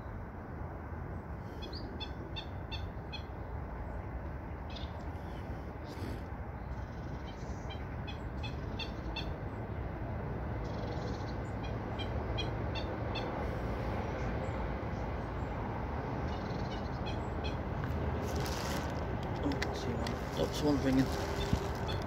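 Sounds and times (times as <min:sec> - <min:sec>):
small birds chirping: 0:16.2 - 0:22.0.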